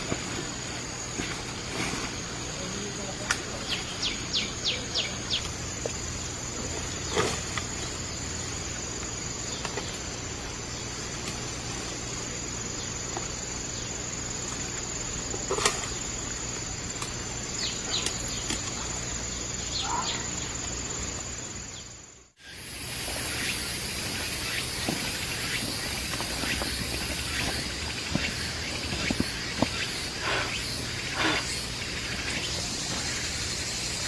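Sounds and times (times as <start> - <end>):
insects droning: 0.0 - 34.0
bird chirping: 3.5 - 5.5, 17.5 - 20.7, 21.6 - 34.0.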